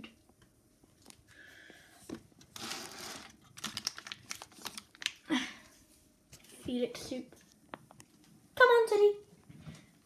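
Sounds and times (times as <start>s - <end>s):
plastic sachet crinkling and tearing: 2.6s - 5.3s.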